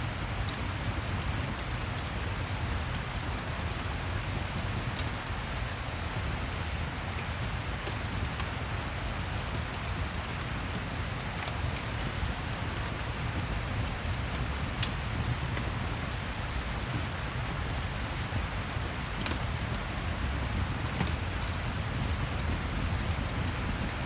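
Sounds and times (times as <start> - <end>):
fireplace clicks and crackles: 0.1 - 24.0
rain hissing: 2.2 - 10.9.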